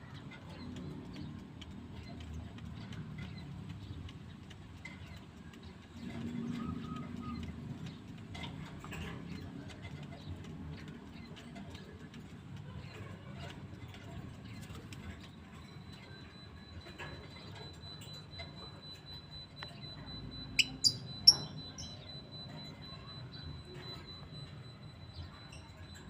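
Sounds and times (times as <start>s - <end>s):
lovebird high-pitched chirps: 13.4s - 26.0s.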